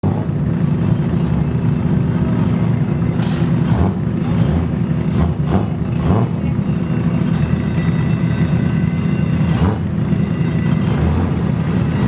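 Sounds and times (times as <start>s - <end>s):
car engines rumbling: 0.0s - 12.0s
engine revs: 0.0s - 12.0s.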